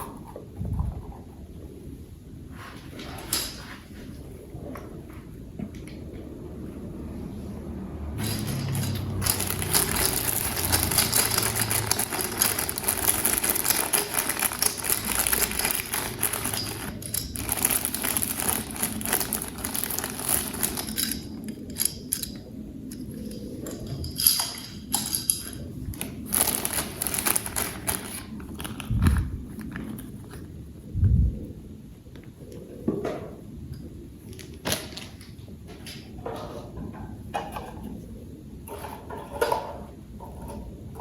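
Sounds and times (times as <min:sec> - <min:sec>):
plastic packaging crinkling: 0:08.2 - 0:22.3, 0:24.9 - 0:30.5.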